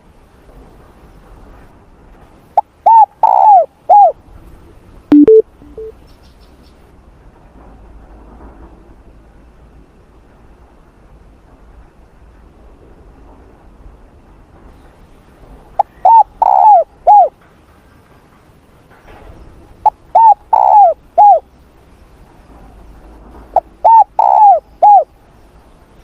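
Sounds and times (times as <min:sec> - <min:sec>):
dove cooing: 0:02.6 - 0:04.2, 0:15.8 - 0:17.3, 0:19.8 - 0:21.4, 0:23.6 - 0:25.1.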